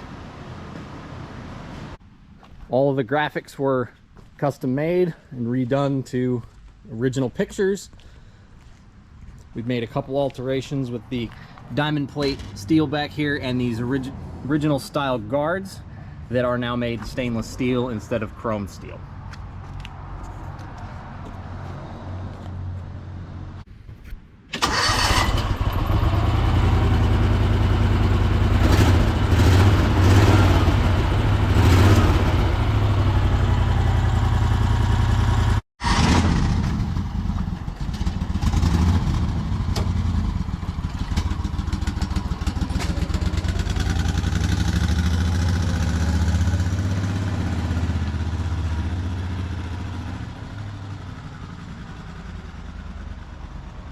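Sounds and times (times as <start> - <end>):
engine throbbing and revving: 25.6 - 51.0.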